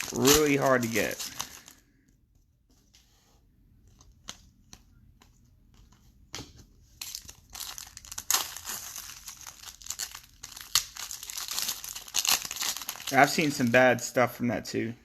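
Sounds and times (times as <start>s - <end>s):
plastic wrapper crinkling and tearing: 0.0s - 1.8s, 7.0s - 13.8s.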